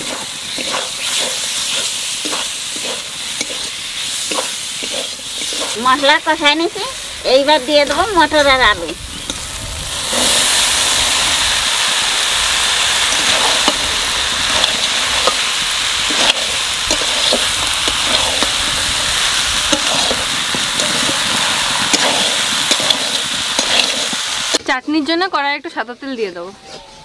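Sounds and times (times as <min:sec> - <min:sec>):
food sizzling in a wok: 0:00.0 - 0:24.7
spatula clicking in a wok: 0:21.9 - 0:24.2.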